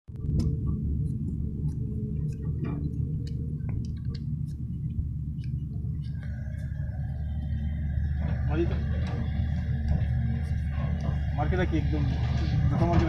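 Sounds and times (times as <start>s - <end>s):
low rumble: 0.1s - 13.0s
light clicks and taps: 0.3s - 6.7s.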